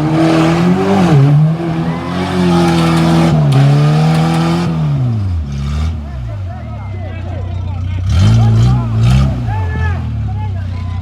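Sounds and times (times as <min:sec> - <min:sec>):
engine revving hard: 0:00.0 - 0:06.3, 0:08.0 - 0:10.1.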